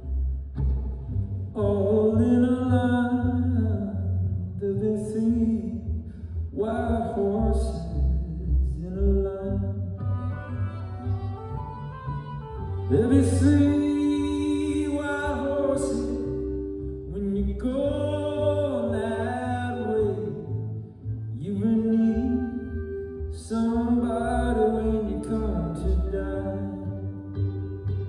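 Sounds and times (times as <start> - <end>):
person singing lead vocal: 1.6 - 5.8, 6.6 - 10.0, 12.8 - 20.7, 21.4 - 27.3
orchestra playing: 10.0 - 14.9.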